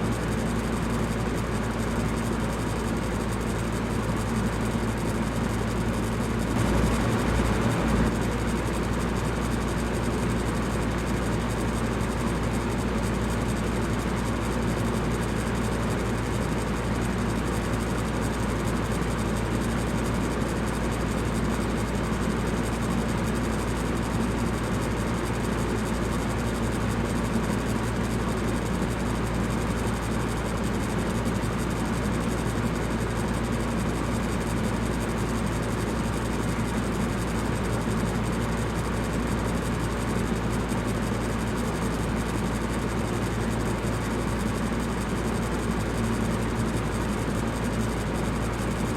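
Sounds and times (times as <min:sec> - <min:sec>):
electric fan running: 0:01.8 - 0:10.0.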